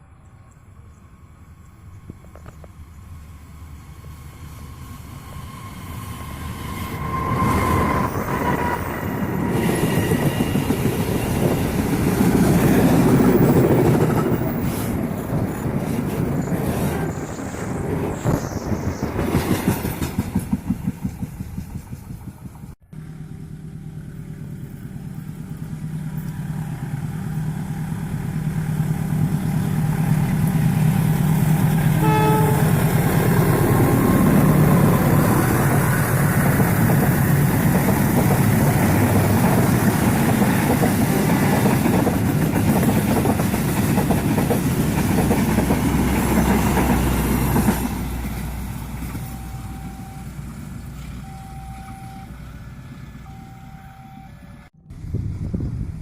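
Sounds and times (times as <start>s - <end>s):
locomotive engine humming: 0.0s - 56.0s
train wheels clattering on rails: 7.0s - 22.8s, 28.9s - 49.4s
train horn: 31.8s - 34.7s.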